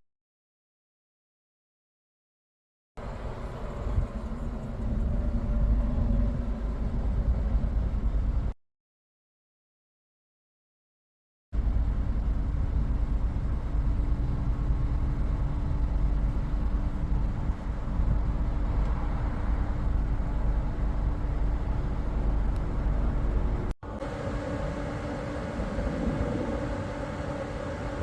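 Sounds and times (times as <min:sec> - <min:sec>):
constant hum: 0:03.0 - 0:08.6, 0:11.6 - 0:28.0
vehicle interior rumble: 0:03.0 - 0:08.6, 0:11.6 - 0:28.0.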